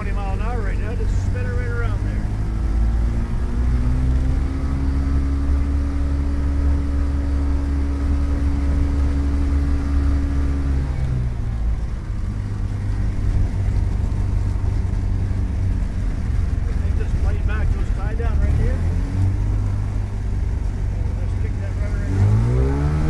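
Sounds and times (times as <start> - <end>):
light aircraft engine running: 0.0 - 23.0.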